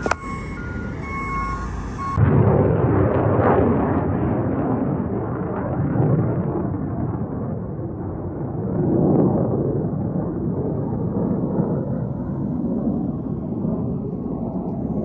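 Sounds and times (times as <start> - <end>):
engine running: 0.0 - 2.2
reversing alarm beeping: 0.0 - 2.2.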